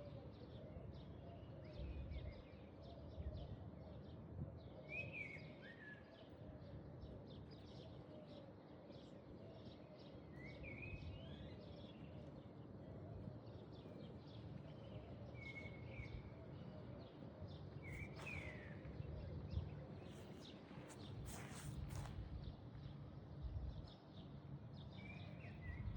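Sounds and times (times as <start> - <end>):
low background noise: 0.0 - 25.9.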